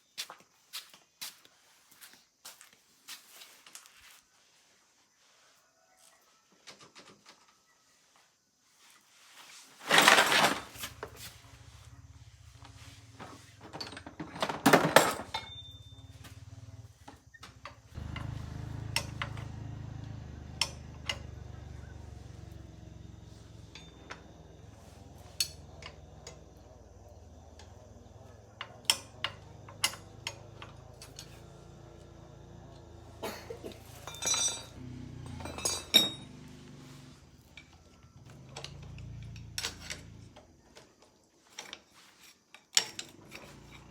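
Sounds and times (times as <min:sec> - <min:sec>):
metal tools clinking: 0:09.8 - 0:11.3, 0:13.2 - 0:16.2, 0:22.4 - 0:26.7, 0:28.6 - 0:31.6, 0:33.2 - 0:36.6, 0:41.4 - 0:43.9.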